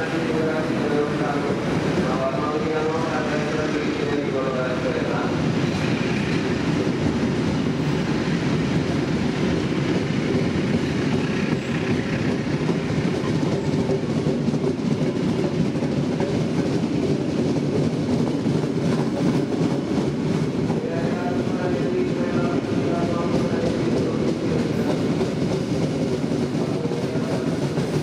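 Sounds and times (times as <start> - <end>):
train wheels on rails: 0.0 - 28.0.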